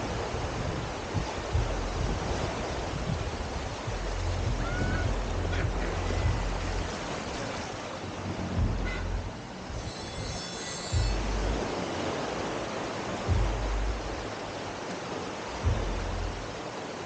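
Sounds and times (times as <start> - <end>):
low rumble: 0.0 - 7.2, 8.4 - 10.3, 10.9 - 11.7, 13.3 - 14.3, 15.6 - 16.6
surf washing on beach: 0.0 - 17.0.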